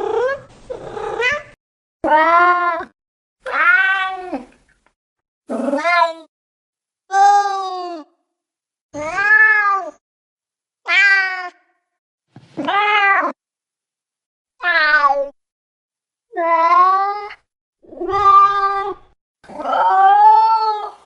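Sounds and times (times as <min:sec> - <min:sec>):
cat meowing: 0:17.9 - 0:19.0.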